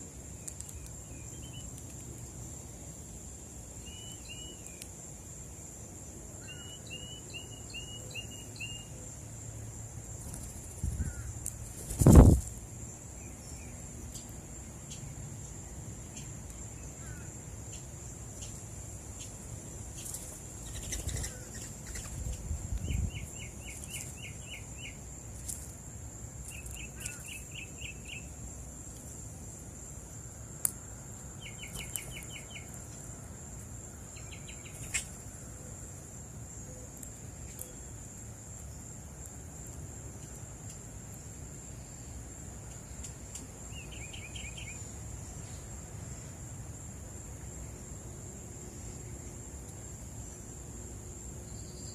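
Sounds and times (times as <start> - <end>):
insect drone: 0.0 - 51.9
songbird singing: 0.0 - 51.9
bird wings fluttering: 10.2 - 12.5.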